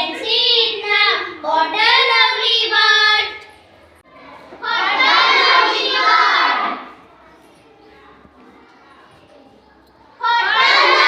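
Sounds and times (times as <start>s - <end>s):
children singing: 0.0s - 3.4s, 4.2s - 7.3s, 10.1s - 11.0s.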